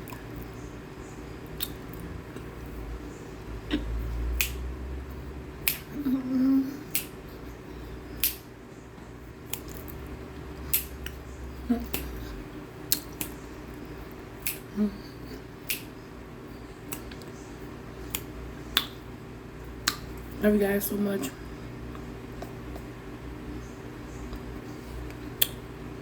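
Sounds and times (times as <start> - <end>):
crunching between teeth: 1.4 - 2.8, 9.4 - 11.2, 11.8 - 14.8, 19.8 - 20.3.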